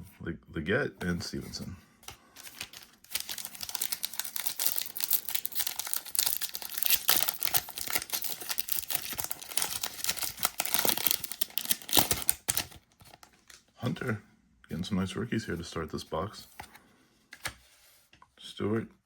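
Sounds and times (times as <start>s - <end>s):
wrapper crinkling and tearing: 2.4s - 13.6s.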